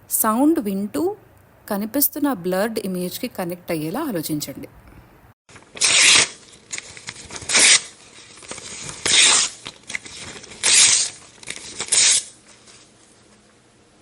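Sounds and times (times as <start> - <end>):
paper ripping: 5.5 - 13.0
faint paper crackling: 5.5 - 13.6.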